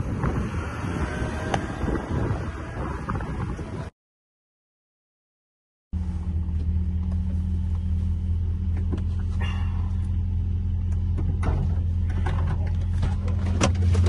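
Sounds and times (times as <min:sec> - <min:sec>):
car engine droning: 0:00.0 - 0:03.9, 0:06.0 - 0:14.0.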